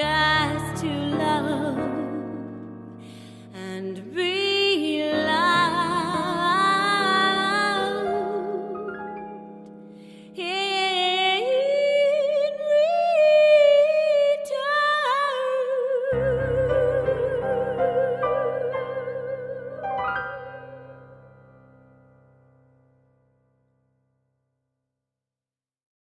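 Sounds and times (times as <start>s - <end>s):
woman singing with vibrato: 0.0s - 2.7s, 3.5s - 9.0s, 10.4s - 21.0s
soft piano: 0.0s - 15.3s, 16.0s - 23.1s
bass notes: 16.2s - 21.7s.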